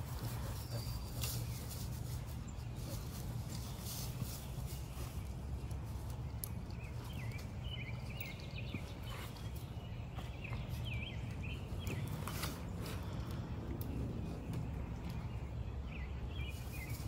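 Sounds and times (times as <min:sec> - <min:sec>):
small bird chirping: 0:00.6 - 0:12.6.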